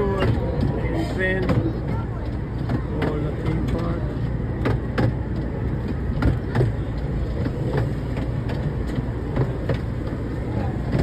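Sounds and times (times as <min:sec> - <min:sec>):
tour train rumble: 0:00.0 - 0:11.0.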